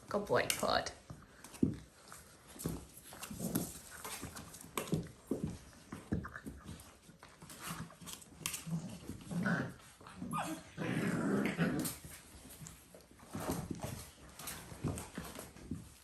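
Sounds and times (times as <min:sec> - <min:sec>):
puppies growling: 0:01.2 - 0:16.0.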